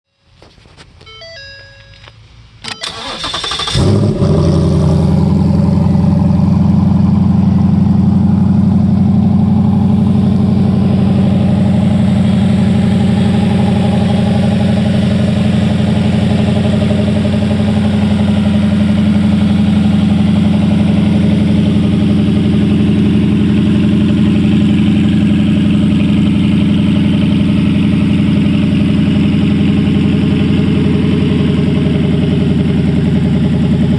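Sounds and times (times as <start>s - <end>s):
engine idling: 2.6s - 33.9s
starter motor cranking: 2.7s - 4.1s.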